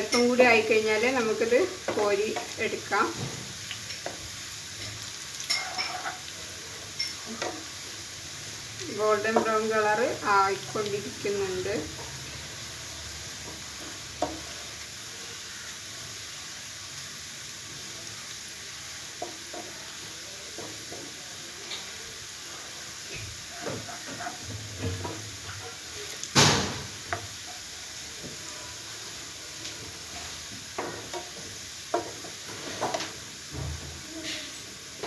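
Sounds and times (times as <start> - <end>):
onions sizzling in a pan: 0.0 - 35.0
spatula scraping a pan: 3.4 - 7.7, 22.4 - 25.9, 28.9 - 33.6.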